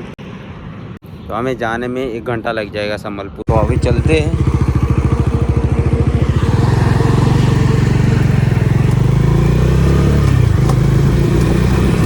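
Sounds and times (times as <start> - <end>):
motorcycle engine running: 3.5 - 12.0.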